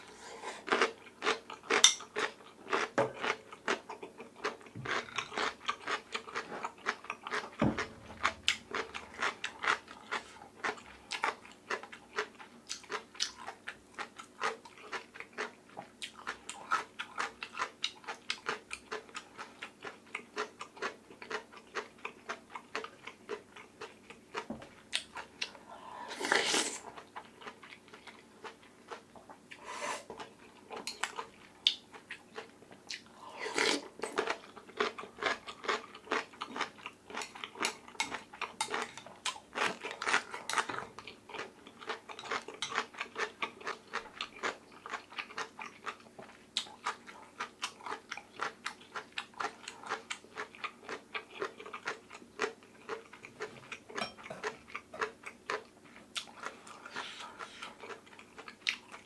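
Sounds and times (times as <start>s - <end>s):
chewing with wet mouth clicks: 30.3s - 33.1s, 34.0s - 59.0s.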